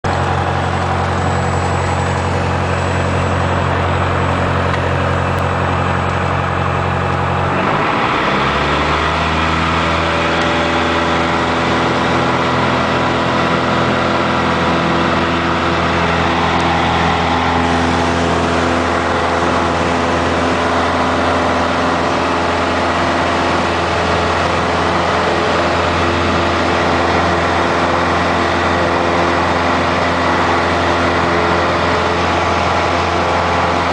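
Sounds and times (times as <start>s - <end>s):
light aircraft piston engine: 0.1s - 33.9s.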